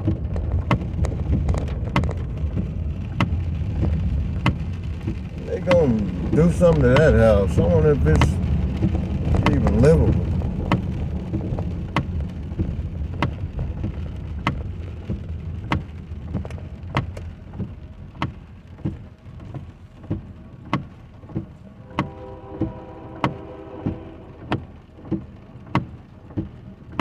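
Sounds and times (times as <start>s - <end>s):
tyre and rain noise: 0.0s - 27.0s.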